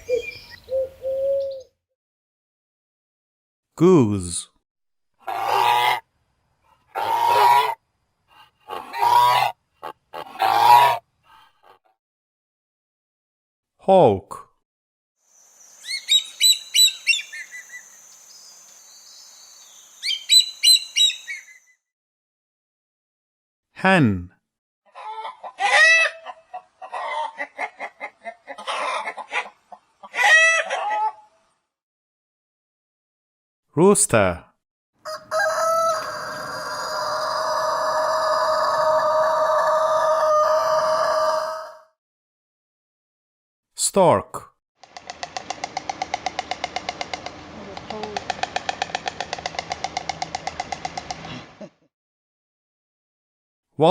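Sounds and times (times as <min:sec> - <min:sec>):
hen clucking: 0:07.0 - 0:11.8, 0:25.0 - 0:31.2
goose honking: 0:08.7 - 0:11.0.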